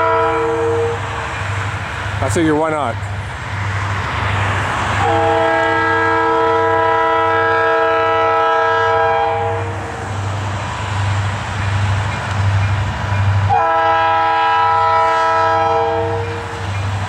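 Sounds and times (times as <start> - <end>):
locomotive air horn chord: 0.0 - 1.3, 5.0 - 10.0, 13.5 - 16.5
low rumble of passing train: 0.0 - 17.0.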